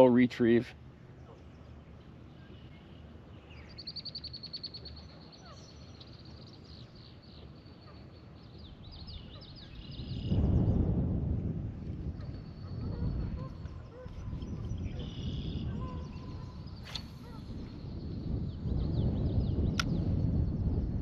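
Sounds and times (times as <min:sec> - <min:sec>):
wild birds calling: 0:12.7 - 0:18.0.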